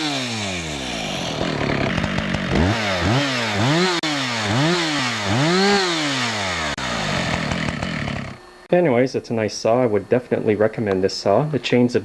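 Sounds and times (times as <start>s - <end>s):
chainsaw idling: 0.0s - 8.7s
chainsaw revving: 0.0s - 8.7s.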